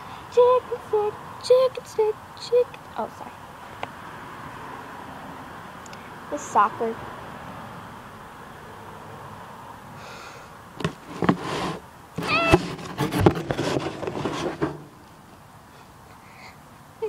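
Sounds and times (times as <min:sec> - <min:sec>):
rustling: 0:10.8 - 0:15.2
cat meowing: 0:12.2 - 0:12.6.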